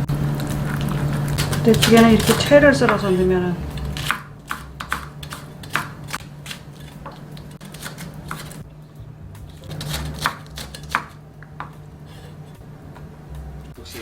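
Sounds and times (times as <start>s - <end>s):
low hum: 0.0s - 14.0s
knife tapping on cutting board: 4.0s - 6.1s, 10.2s - 11.8s.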